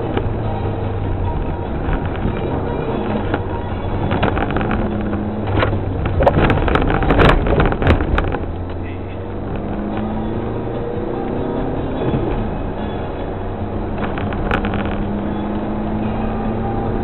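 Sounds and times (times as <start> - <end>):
rally car engine running: 0.0 - 17.0
sharp knocks and rattles: 3.1 - 8.8.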